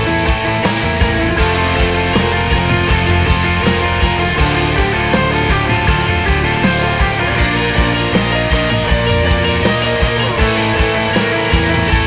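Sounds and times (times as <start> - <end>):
bass: 0.0 - 12.0
distorted electric guitars: 0.0 - 12.0
drum hits: 0.0 - 12.0.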